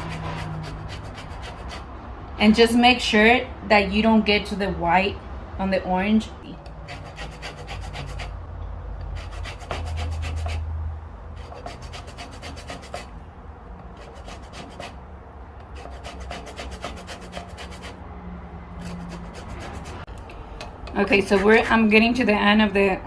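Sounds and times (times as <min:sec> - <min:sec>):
orange peel scraping on grater: 0:00.0 - 0:01.9, 0:06.9 - 0:08.3, 0:09.1 - 0:10.6, 0:11.4 - 0:13.1, 0:14.0 - 0:15.0, 0:15.6 - 0:18.0, 0:18.8 - 0:20.1, 0:21.0 - 0:21.8.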